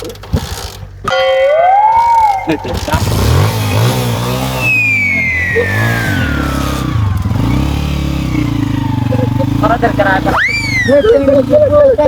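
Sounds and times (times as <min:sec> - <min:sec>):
falling whistle-like tone: 0:01.1 - 0:02.6, 0:04.5 - 0:07.3
motorcycle engine revving: 0:02.3 - 0:12.0.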